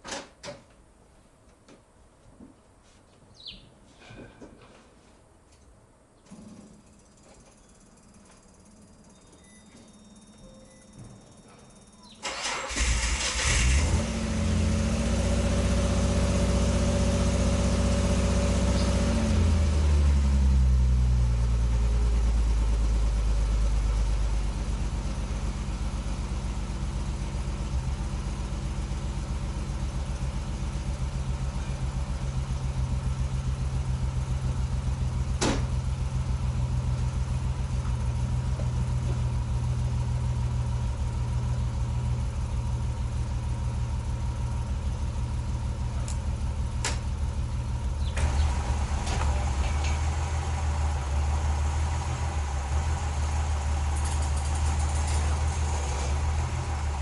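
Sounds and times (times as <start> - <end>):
car engine starting and idling: 11.4 - 57.0.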